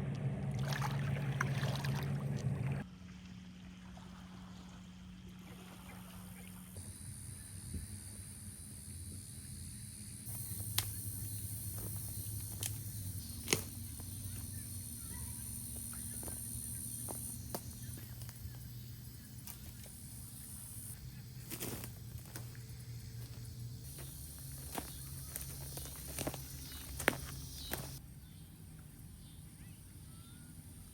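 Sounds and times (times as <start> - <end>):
low hum: 0.0 - 30.9
steady high hiss: 6.8 - 28.0.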